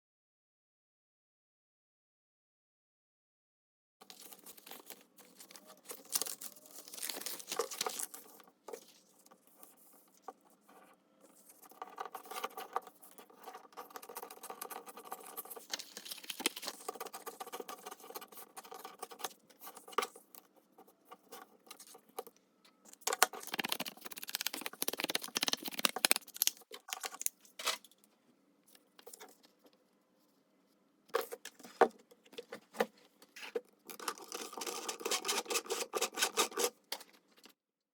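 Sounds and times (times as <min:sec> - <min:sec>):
paper rustling: 0:04.0 - 0:09.9, 0:14.0 - 0:20.2, 0:23.0 - 0:27.9
paper crinkling: 0:04.0 - 0:10.0, 0:11.3 - 0:20.2, 0:23.0 - 0:27.9.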